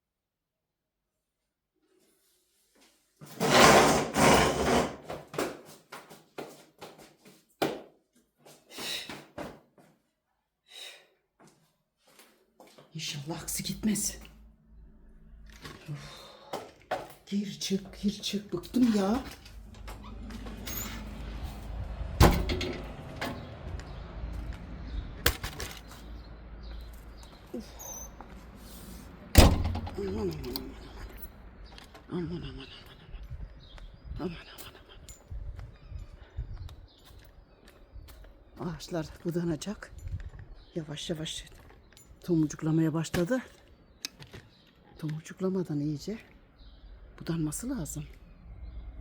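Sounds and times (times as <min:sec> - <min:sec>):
sharp knocks: 0:29.4 - 0:30.1.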